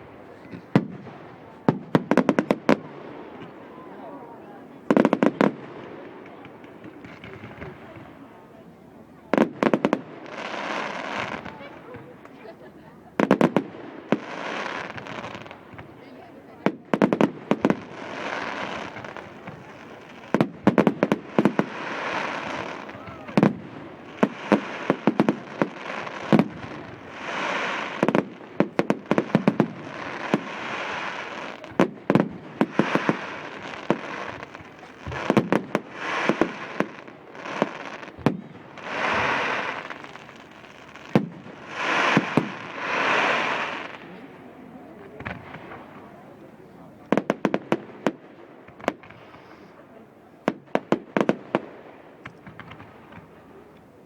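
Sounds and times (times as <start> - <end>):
fireworks bangs: 0.0 - 49.8, 50.4 - 54.0.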